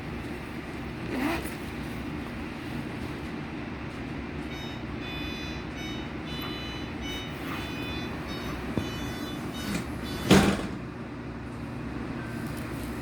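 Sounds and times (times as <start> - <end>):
train rumbling: 1.7 - 13.0
short high warning tones: 4.4 - 10.7.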